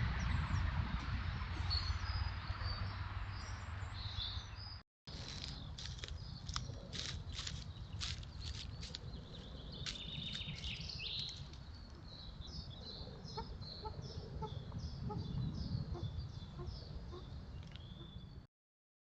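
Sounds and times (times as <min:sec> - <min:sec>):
birds calling: 0:03.8 - 0:18.4
steady low rumble: 0:05.3 - 0:18.4.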